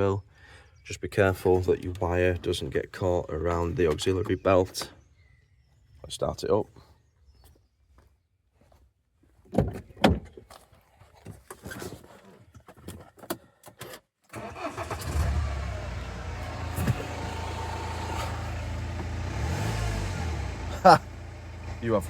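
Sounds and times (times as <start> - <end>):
diesel engine starting and idling: 14.3 - 22.0.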